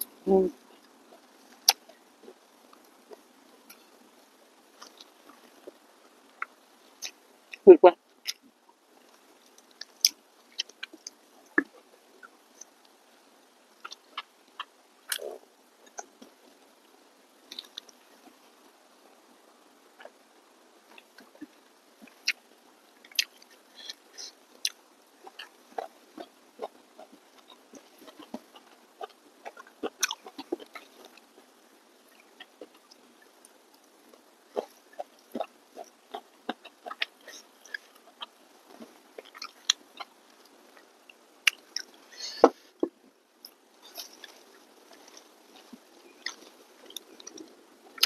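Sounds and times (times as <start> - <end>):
person chewing with mouth clicks: 1.5 - 3.9, 9.5 - 13.0, 13.8 - 16.3, 17.5 - 18.0, 23.1 - 31.5, 32.1 - 48.0.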